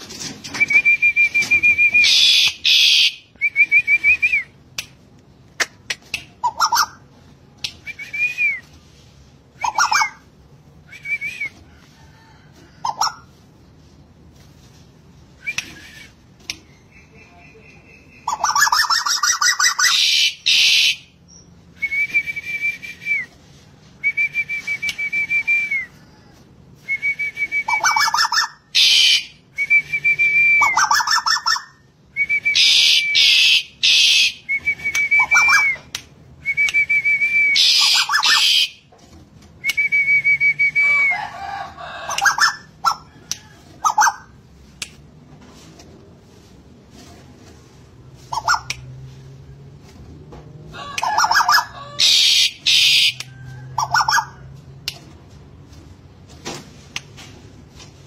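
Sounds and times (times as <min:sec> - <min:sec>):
bird whistling: 0:00.5 - 0:04.5, 0:18.2 - 0:23.3, 0:26.9 - 0:38.8, 0:52.0 - 0:53.2.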